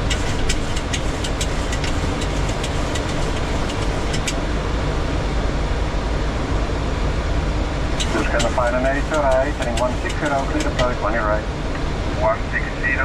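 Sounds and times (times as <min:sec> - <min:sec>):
aircraft cockpit noise: 0:00.0 - 0:13.0.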